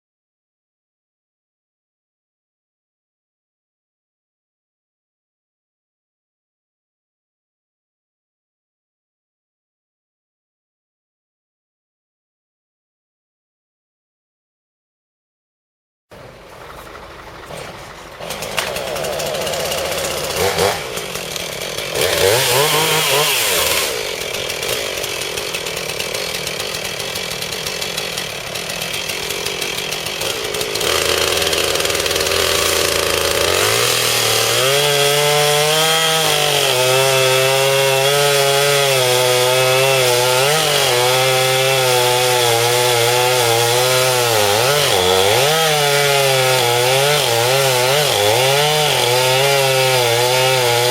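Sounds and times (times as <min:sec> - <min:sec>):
chainsaw revving: 0:16.2 - 0:50.9.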